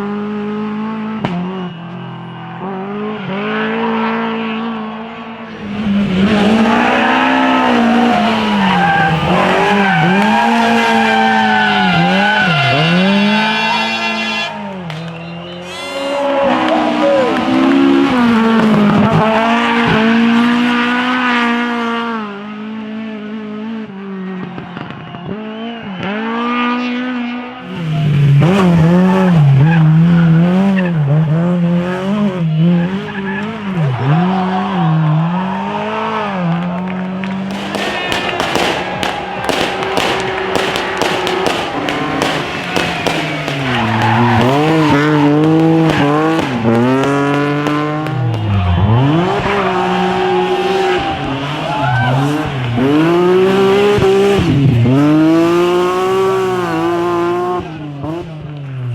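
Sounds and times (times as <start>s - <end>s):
car engines revving: 0.0s - 58.9s
tyres squealing: 5.5s - 14.6s.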